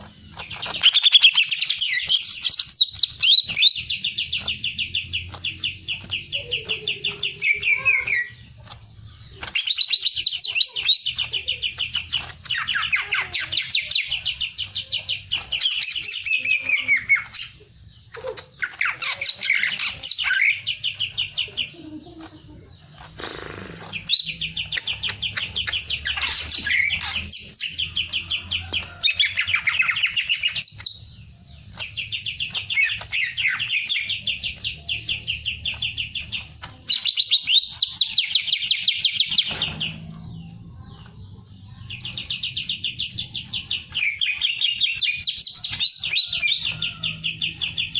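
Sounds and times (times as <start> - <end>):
songbird trills and whistles: 0.0 - 8.4, 9.3 - 22.2, 31.7 - 40.0, 42.0 - 47.9.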